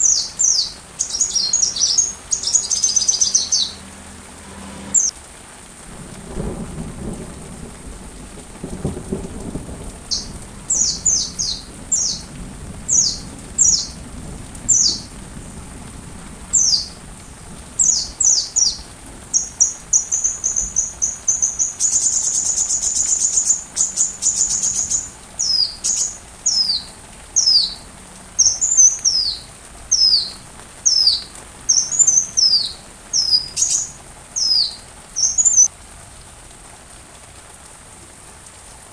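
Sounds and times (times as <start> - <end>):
bird chirping: 0.0 - 3.9, 4.7 - 5.1, 10.1 - 12.3, 12.9 - 14.0, 19.4 - 27.8, 28.4 - 35.7
steady rain: 0.0 - 38.9
low thunder rumble: 5.8 - 23.0.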